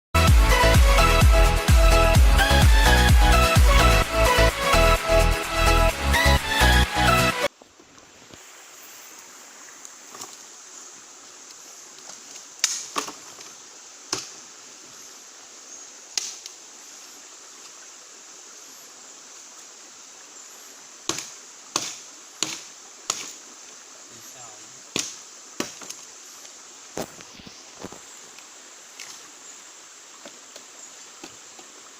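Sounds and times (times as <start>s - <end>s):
steady rushing hiss: 0.4s - 31.9s.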